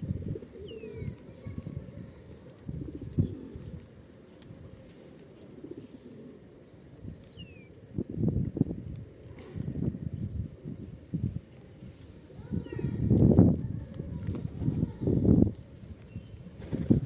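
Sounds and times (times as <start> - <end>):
pigeons cooing: 0.0 - 3.9, 4.7 - 7.9.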